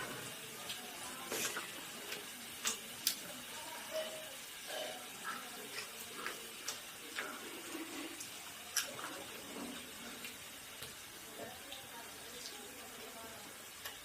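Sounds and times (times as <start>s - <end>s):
wet chewing and mouth smacks: 5.2s - 7.4s, 8.1s - 9.2s.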